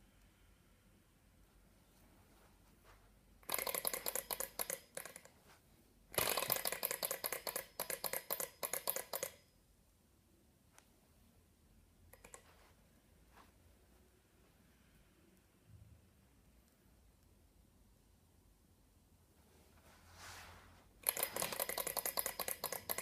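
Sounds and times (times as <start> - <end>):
model engine parts clicking rapidly: 3.5 - 5.2, 6.2 - 9.4, 21.0 - 23.0.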